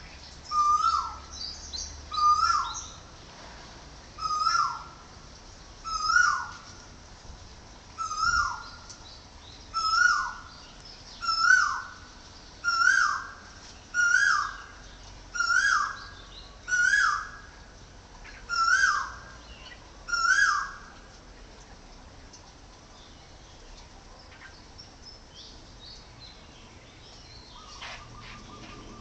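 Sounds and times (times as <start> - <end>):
bird calling: 0.0 - 3.1, 4.2 - 5.1, 5.8 - 6.7, 8.0 - 9.1, 9.7 - 21.0, 27.1 - 29.0.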